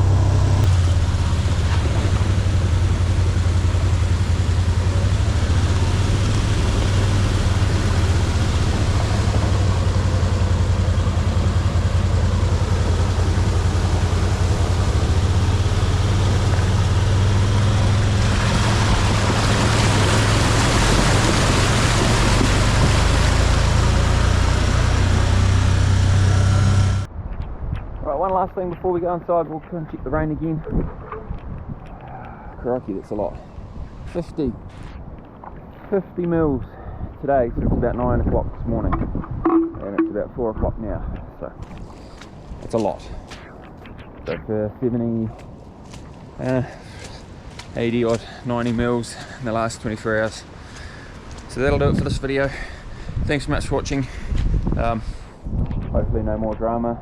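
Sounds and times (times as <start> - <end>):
vehicle engine humming: 0.0 - 27.1.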